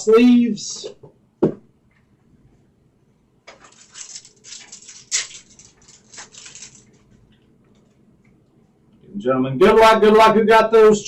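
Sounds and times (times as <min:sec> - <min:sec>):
plastic card sleeves crinkling: 0:03.5 - 0:07.5.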